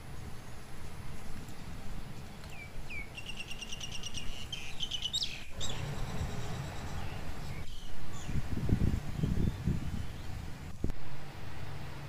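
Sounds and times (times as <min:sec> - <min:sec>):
small bird chirping: 0:00.2 - 0:08.5.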